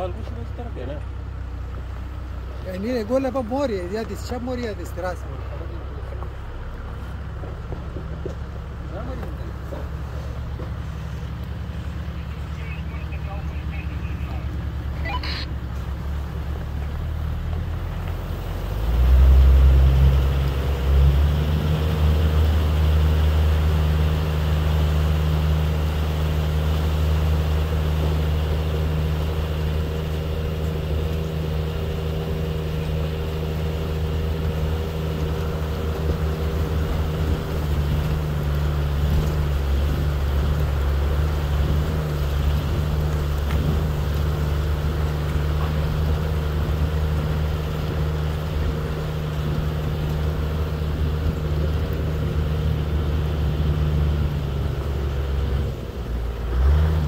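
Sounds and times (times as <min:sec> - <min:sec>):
car engine running: 0:00.0 - 0:57.0
road noise: 0:00.0 - 0:57.0.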